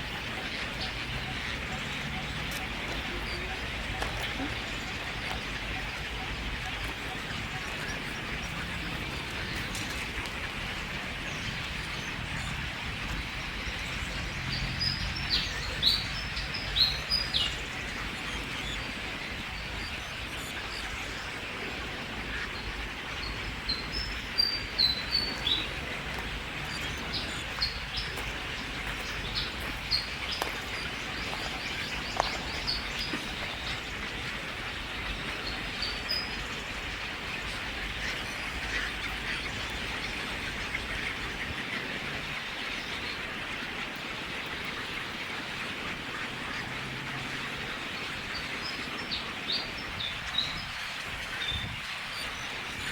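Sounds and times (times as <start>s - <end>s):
birds chirping: 0.0s - 52.9s
outdoor ambience hiss: 0.0s - 52.9s.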